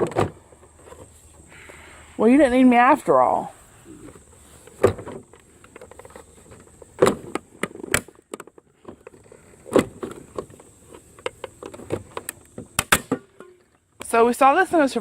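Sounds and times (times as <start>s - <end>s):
clicks and knocks of handling: 4.6s - 13.8s.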